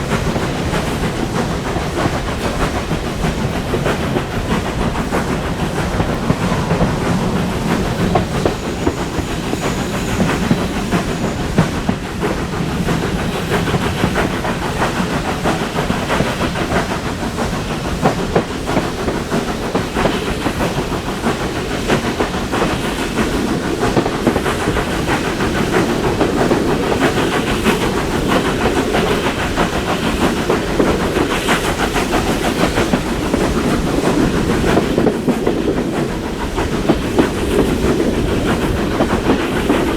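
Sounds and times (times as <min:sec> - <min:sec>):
train rumbling along: 0:00.0 - 0:39.9
wheels clicking over rail joints: 0:00.0 - 0:39.9.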